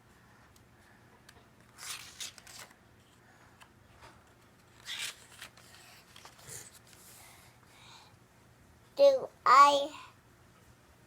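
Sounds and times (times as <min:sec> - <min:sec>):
paper pages turning: 0:01.6 - 0:03.2, 0:04.6 - 0:07.0.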